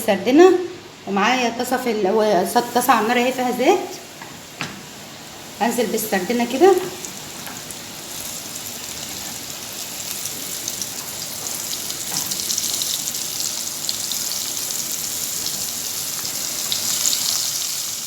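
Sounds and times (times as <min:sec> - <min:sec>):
fish frying in hot oil: 0:05.1 - 0:18.0.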